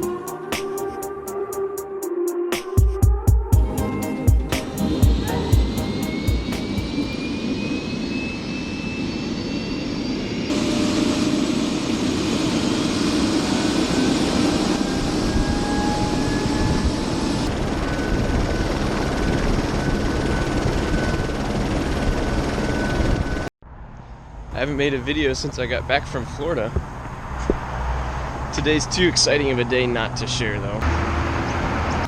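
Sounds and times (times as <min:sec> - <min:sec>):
helicopter turbine whine: 0:00.0 - 0:23.5
engine and rotor rush: 0:03.5 - 0:23.5.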